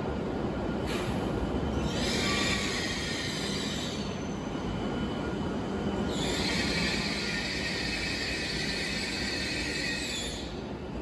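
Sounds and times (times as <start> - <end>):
train rumbling into station: 0.0 - 11.0
high wheel squeal: 1.8 - 4.4, 6.0 - 10.6.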